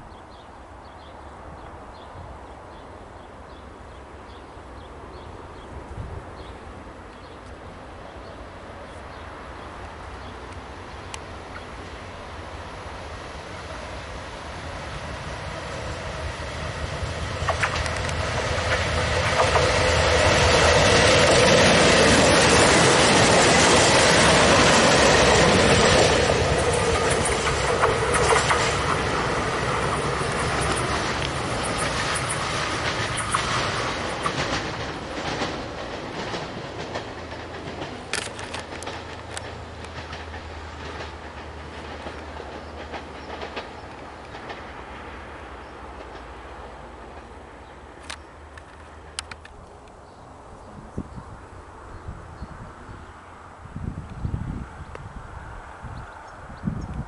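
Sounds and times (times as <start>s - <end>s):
diesel train passing: 0.0s - 57.0s
wheels clattering on rails: 15.4s - 49.7s.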